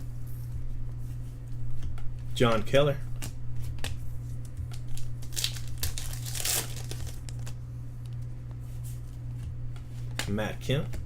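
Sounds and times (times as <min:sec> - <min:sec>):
cards being handled: 0:00.4 - 0:07.6
card pack wrapper crinkling: 0:04.7 - 0:07.6.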